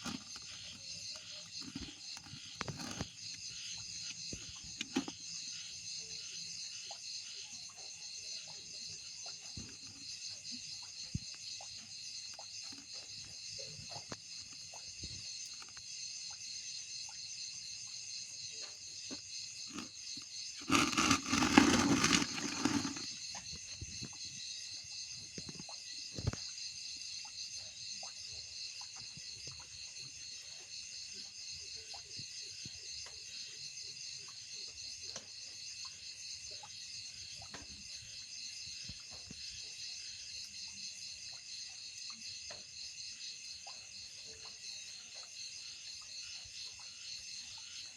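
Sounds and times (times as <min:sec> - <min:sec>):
insects trilling: 0:00.0 - 0:18.1
loud broad rustling: 0:20.6 - 0:23.1.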